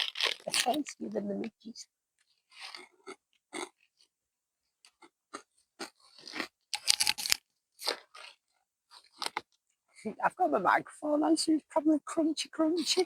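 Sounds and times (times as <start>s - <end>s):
person crunching a snack: 0.0s - 0.9s, 2.2s - 4.1s, 4.8s - 9.7s.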